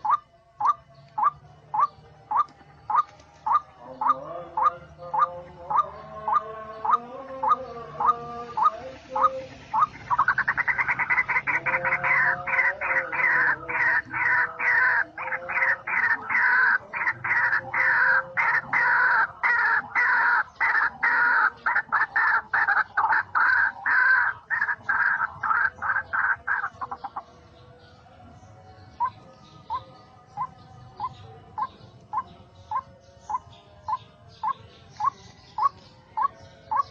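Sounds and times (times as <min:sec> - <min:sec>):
waterhen calling and croaking: 0:00.0 - 0:27.6, 0:28.8 - 0:36.9.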